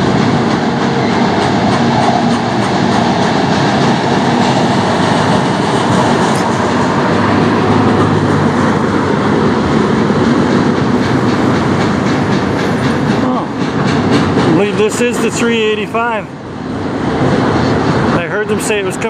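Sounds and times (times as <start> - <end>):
freight train wheels rumbling: 0.0 - 19.0
wheels clicking over rail joints: 7.3 - 16.0.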